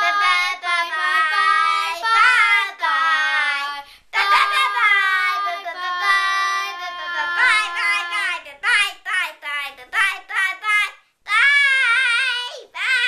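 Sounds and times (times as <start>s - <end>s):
child singing long notes: 0.0s - 8.5s.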